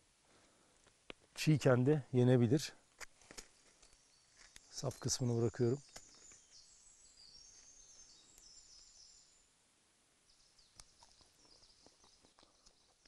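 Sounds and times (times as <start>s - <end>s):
faint high bird chirping: 3.6s - 9.6s, 10.2s - 13.0s.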